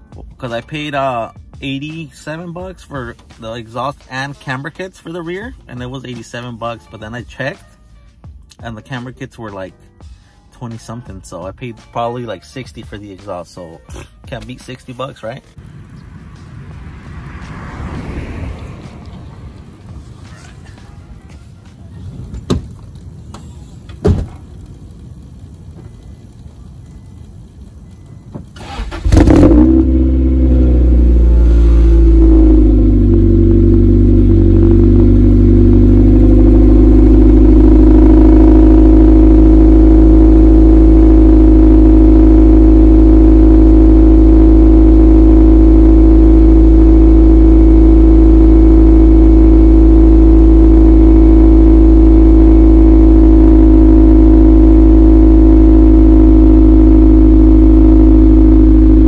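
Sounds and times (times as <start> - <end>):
car engine idling: 12.4 - 59.0.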